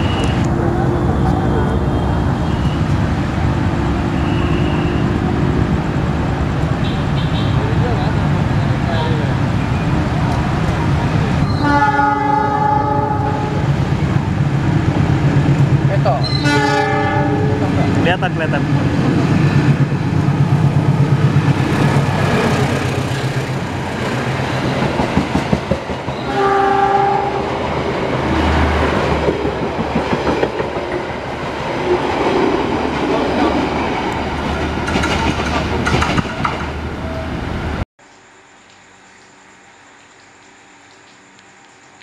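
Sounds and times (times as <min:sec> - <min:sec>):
train horn blast: 0:04.1 - 0:05.6, 0:11.5 - 0:13.6, 0:16.2 - 0:17.9, 0:26.2 - 0:27.6
train wheels clattering: 0:34.6 - 0:36.8.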